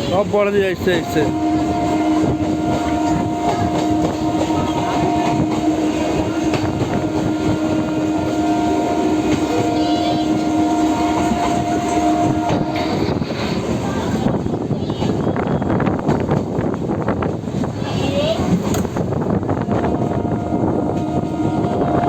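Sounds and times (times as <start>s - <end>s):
train rumbling and clattering: 0.0s - 22.0s
steady pitched tone: 0.8s - 13.6s, 19.6s - 22.0s.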